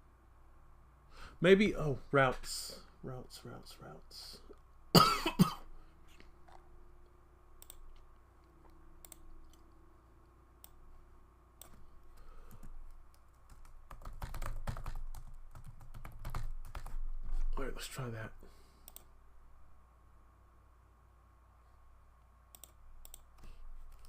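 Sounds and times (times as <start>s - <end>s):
computer keyboard typing: 12.4s - 17.1s, 22.6s - 24.0s.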